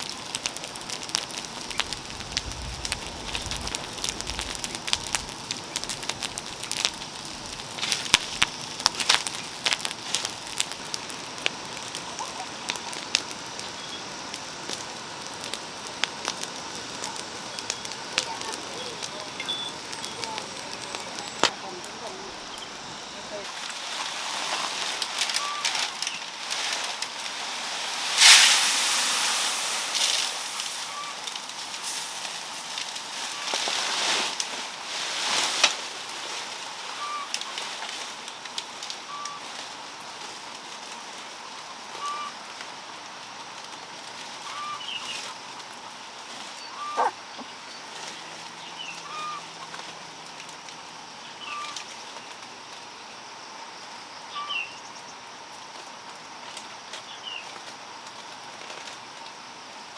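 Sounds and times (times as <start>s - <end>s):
wood fire crackling: 0.0s - 54.1s, 55.4s - 59.9s
bird chirping: 17.5s - 23.2s
loud hiss: 26.2s - 36.2s.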